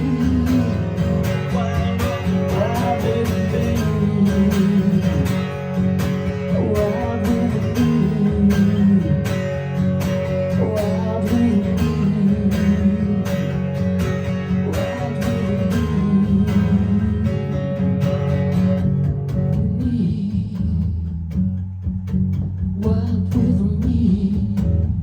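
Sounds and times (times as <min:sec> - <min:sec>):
acoustic guitar strumming: 0:00.0 - 0:22.8.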